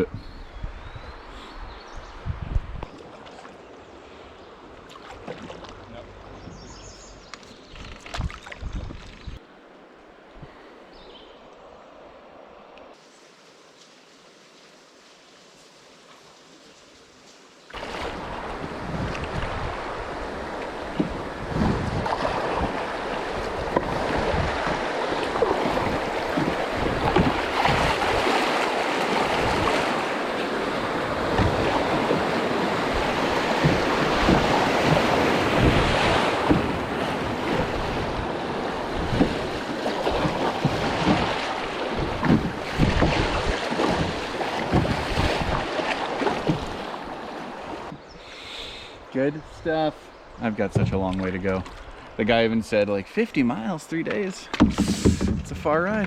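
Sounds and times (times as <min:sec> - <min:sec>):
wind buffeting microphone: 0:00.0 - 0:03.0, 0:06.4 - 0:09.4, 0:18.0 - 0:45.7
river water rushing: 0:17.7 - 0:48.0.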